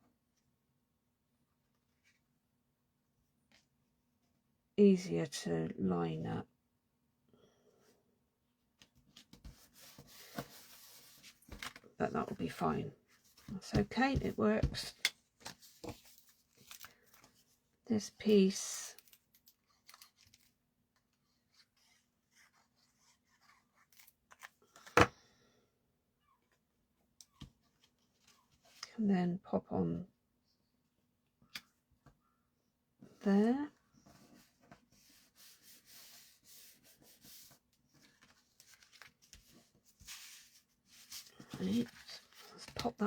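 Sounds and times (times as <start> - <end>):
card stock rustling: 13.3 - 17.5, 34.3 - 43.0.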